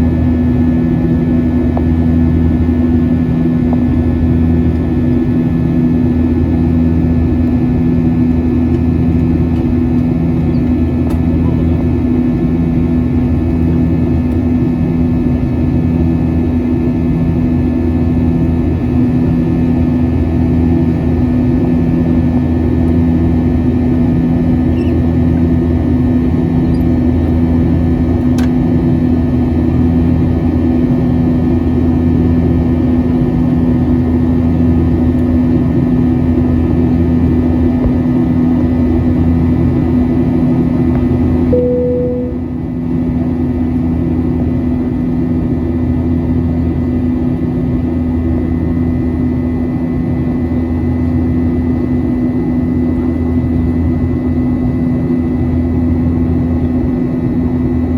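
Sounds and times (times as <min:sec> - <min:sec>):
jet engines droning in cabin: 0:00.0 - 0:57.9
slow pulsing beat: 0:41.6 - 0:42.7.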